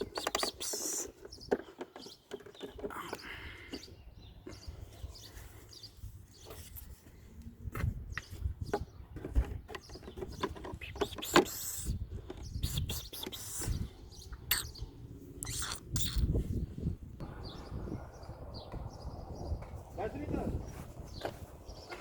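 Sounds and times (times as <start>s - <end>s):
hand tools clicking and scraping: 0.0s - 3.9s, 9.2s - 13.7s.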